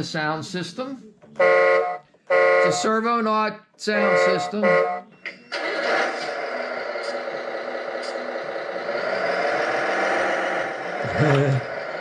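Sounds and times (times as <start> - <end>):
simulated truck engine through speaker: 5.5 - 12.0.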